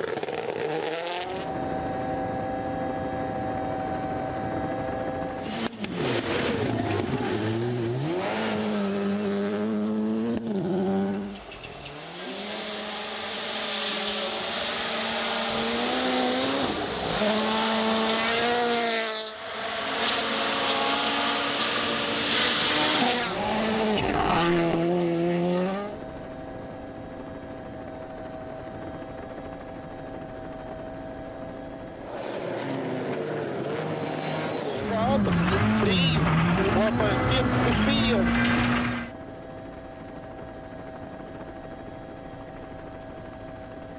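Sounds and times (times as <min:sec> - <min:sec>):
rally car engines revving: 0:00.0 - 0:26.2, 0:31.9 - 0:39.1.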